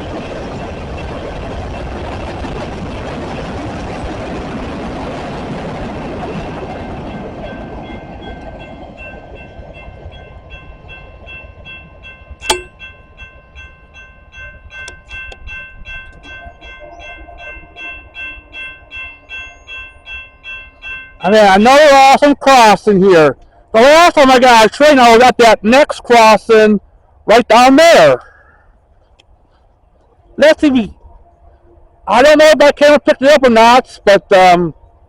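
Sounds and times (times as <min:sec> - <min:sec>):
freight train rumble: 0:00.0 - 0:35.0
railroad crossing bell ringing: 0:06.5 - 0:22.7
sharp knock: 0:12.4 - 0:12.8.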